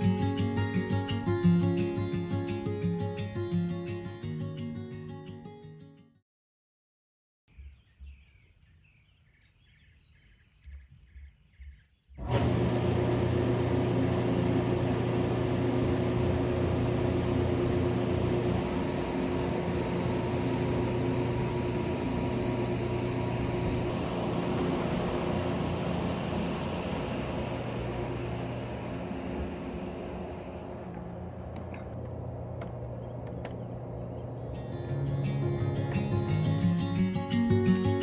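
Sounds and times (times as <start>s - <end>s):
machine drone with high whine: 12.3s - 34.6s.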